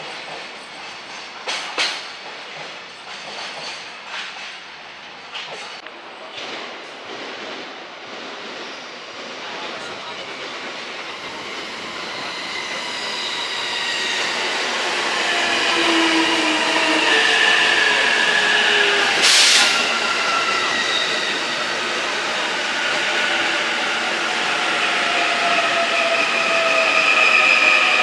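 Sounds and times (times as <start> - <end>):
electric train running past: 7.2 - 28.0.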